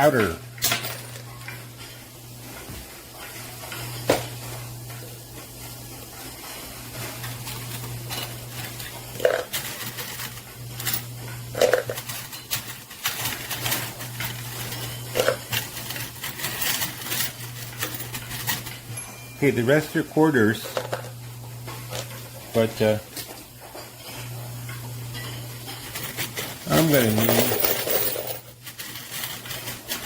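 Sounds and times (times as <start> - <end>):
coins clinking and clattering: 0.1 - 1.5, 7.0 - 21.2, 25.2 - 30.0.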